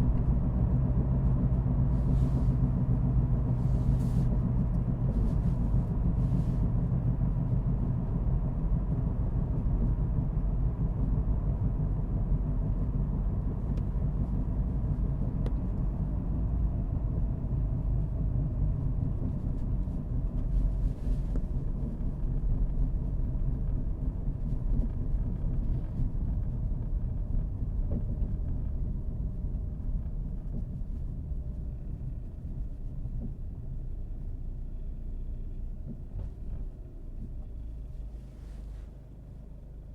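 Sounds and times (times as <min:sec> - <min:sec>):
road noise: 0:00.0 - 0:08.2
car engine rumble: 0:00.0 - 0:39.9.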